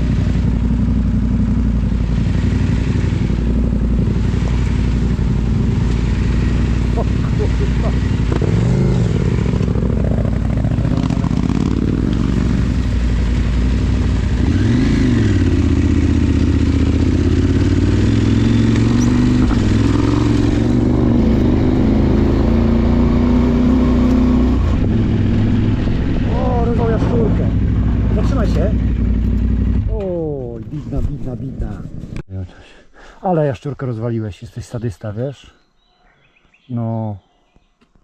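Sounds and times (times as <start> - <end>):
motorcycle engine running: 0.0 - 32.2.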